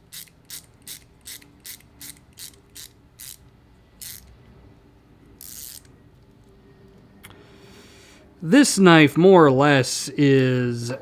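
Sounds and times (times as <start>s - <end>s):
ratchet clicking: 0.1s - 3.4s, 4.0s - 4.3s, 5.4s - 5.9s.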